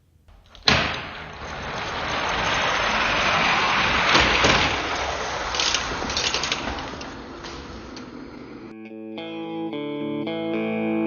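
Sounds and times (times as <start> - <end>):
exhaust crackling: 0.0 - 8.7
vehicle engine revving: 1.2 - 8.7.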